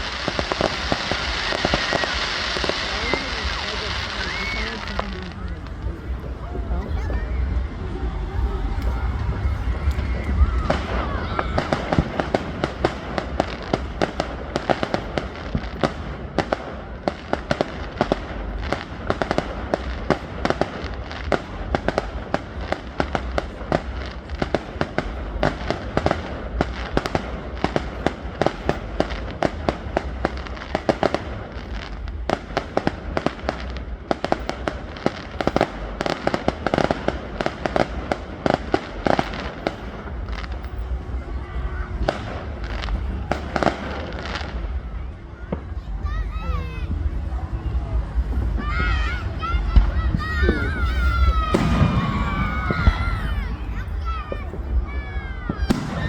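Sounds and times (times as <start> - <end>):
low rumble: 0.0 - 16.8
fireworks crackling bangs: 0.0 - 56.0.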